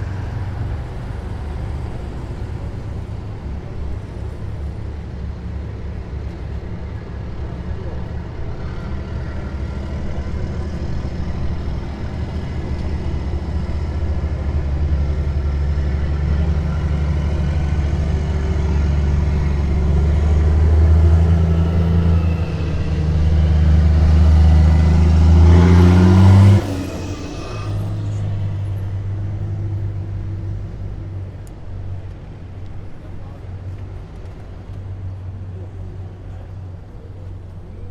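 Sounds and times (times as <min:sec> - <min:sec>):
heavy vehicle engine: 0:00.0 - 0:37.9
rushing whoosh: 0:09.5 - 0:30.2.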